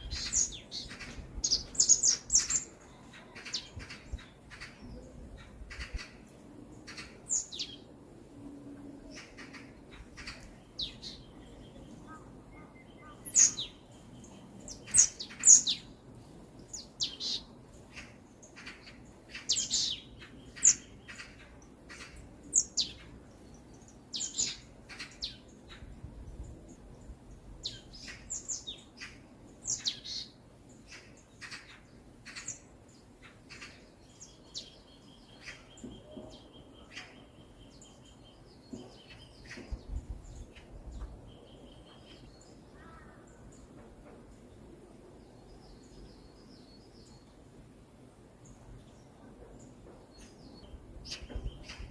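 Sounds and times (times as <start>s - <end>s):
songbirds chirping: 0.0s - 51.9s
bird trill: 10.2s - 13.8s.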